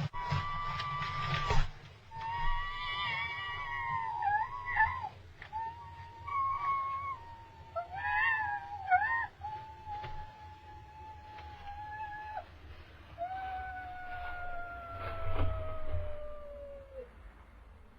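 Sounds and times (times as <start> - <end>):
young bird of prey whistling calls: 0.2 - 12.5.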